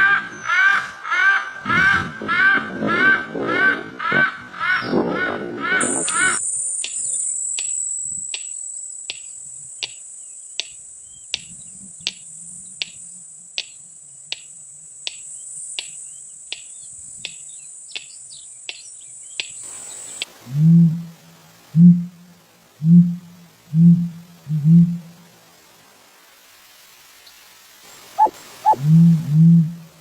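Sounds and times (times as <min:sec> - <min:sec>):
sharp short chirp: 0:05.8 - 0:09.4, 0:28.2 - 0:29.2
high-pitched insect trill: 0:05.8 - 0:30.0
deep low hooting call: 0:20.4 - 0:25.2, 0:28.2 - 0:30.0.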